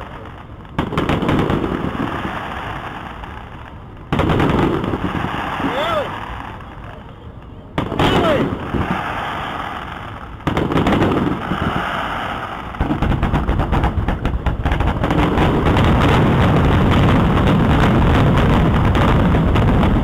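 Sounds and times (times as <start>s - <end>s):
fireworks barrage and crackle: 0.0s - 20.0s
fireworks shells bursting: 7.8s - 20.0s.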